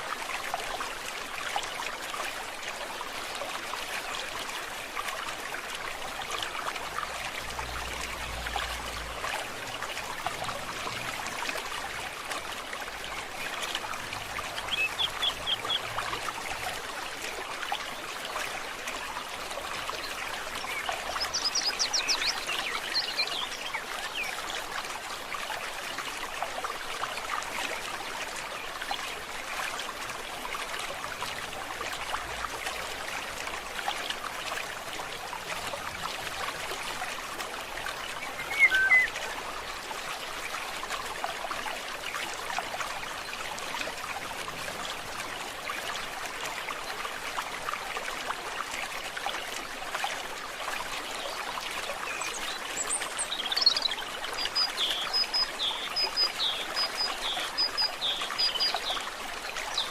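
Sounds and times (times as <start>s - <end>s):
stream babbling: 0.0s - 59.9s
high bird chirps: 38.3s - 39.1s
short bird call: 38.4s - 39.1s.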